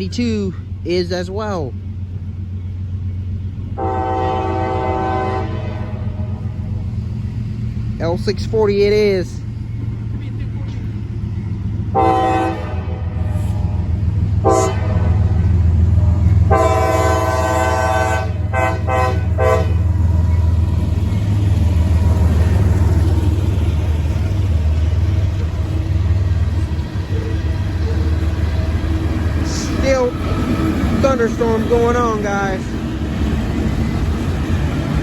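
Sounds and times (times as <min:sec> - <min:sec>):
diesel engine rumble: 0:00.0 - 0:35.0
train rolling: 0:00.0 - 0:35.0
locomotive horn blasts: 0:03.8 - 0:06.5, 0:11.9 - 0:19.9.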